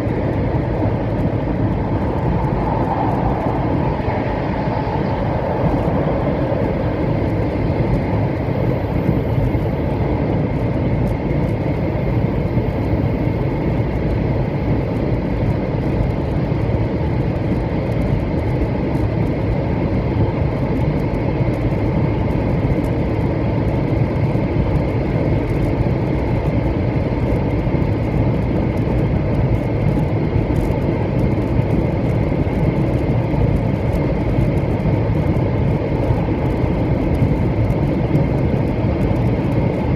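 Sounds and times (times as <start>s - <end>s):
faint high whine: 0.0s - 16.4s
train running rumble: 0.0s - 39.9s.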